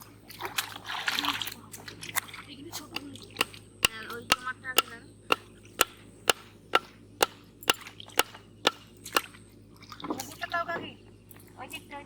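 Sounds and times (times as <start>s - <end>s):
blade chopping wood: 3.0s - 9.3s.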